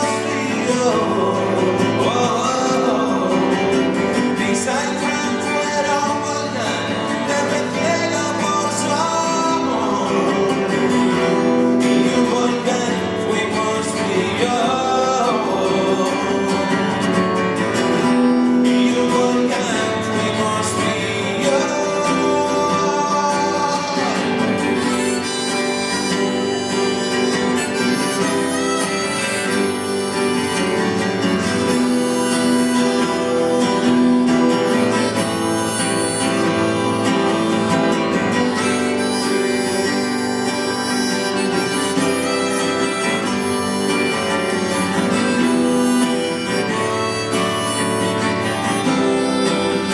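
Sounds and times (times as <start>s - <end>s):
harmonica lead: 0.0s - 49.9s
strummed acoustic guitar: 0.0s - 49.9s.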